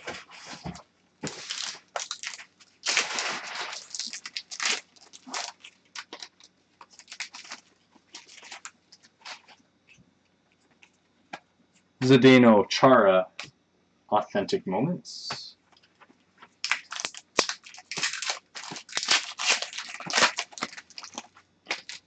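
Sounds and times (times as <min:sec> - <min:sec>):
trading cards rustling: 0:00.0 - 0:09.5, 0:16.5 - 0:22.0.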